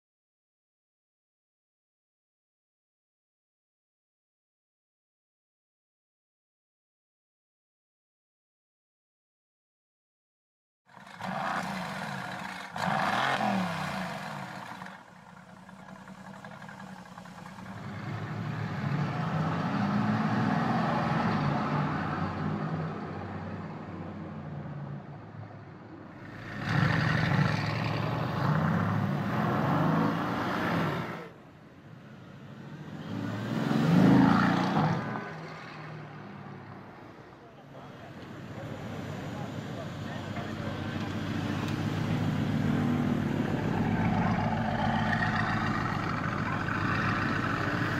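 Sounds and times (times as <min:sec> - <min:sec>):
car engine revving loudly: 0:10.9 - 0:21.2, 0:26.2 - 0:31.2.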